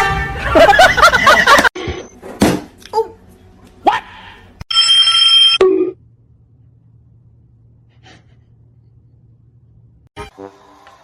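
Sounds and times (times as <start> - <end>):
bell-like ringing tone: 4.7 - 5.7.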